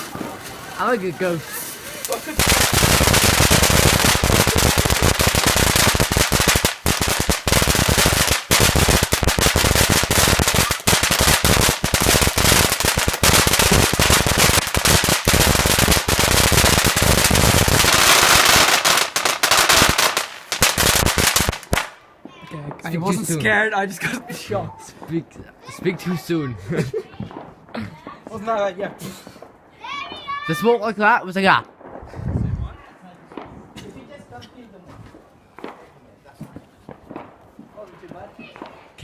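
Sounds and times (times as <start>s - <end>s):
firework rapid bangs and crackles: 0.0s - 22.0s, 27.2s - 28.4s, 35.6s - 39.0s.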